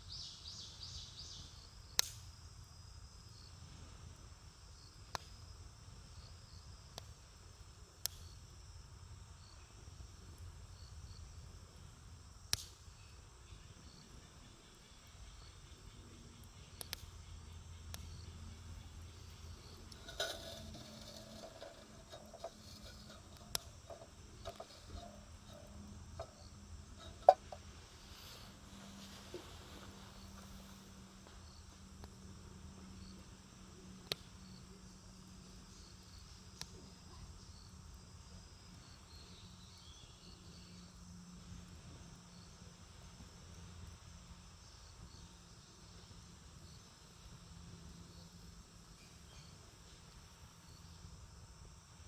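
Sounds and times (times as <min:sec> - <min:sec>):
insects trilling: 0:00.0 - 0:52.0
low steady hum: 0:08.6 - 0:36.9
campfire crackling: 0:19.0 - 0:29.8.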